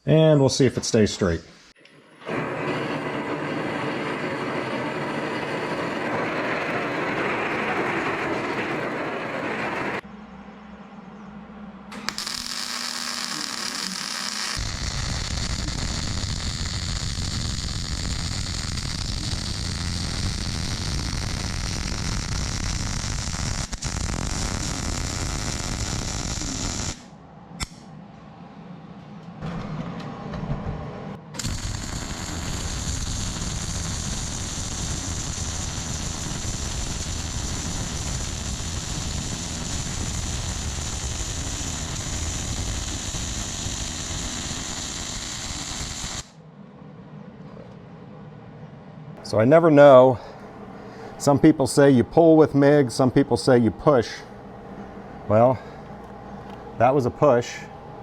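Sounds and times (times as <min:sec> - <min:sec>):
welding arc crackling: 0:12.0 - 0:27.8, 0:31.4 - 0:46.4.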